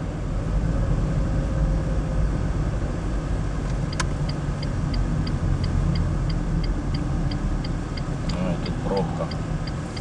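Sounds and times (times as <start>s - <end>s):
car road and engine rumble: 0.0s - 10.0s
turn signal ticking: 3.5s - 10.0s.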